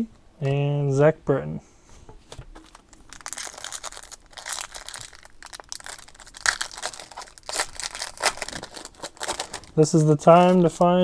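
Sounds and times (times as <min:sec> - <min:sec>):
foil wrapper crinkling and tearing: 0:02.6 - 0:10.8.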